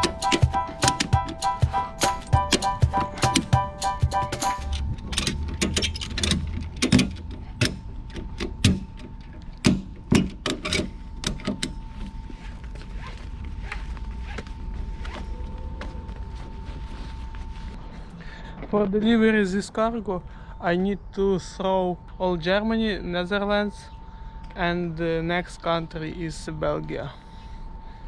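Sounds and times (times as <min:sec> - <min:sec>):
mechanical clicks and knocks: 0:00.0 - 0:07.2.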